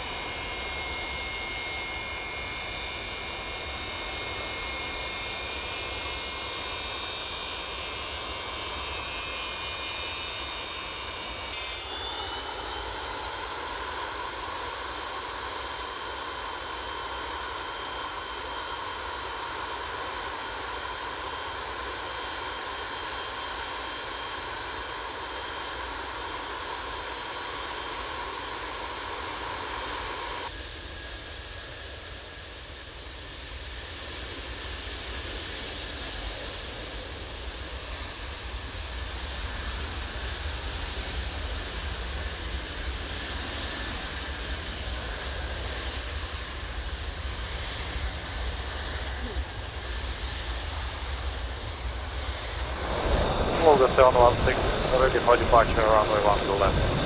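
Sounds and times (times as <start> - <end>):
jet engine rumble: 52.5 - 57.0
jet engines whining: 52.5 - 57.0.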